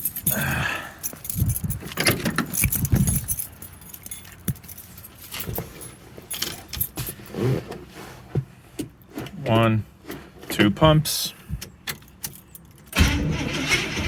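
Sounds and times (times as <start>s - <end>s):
keys jangling: 0.0s - 7.3s, 11.9s - 13.0s
handling clicks and knocks: 0.0s - 10.8s, 11.5s - 13.0s.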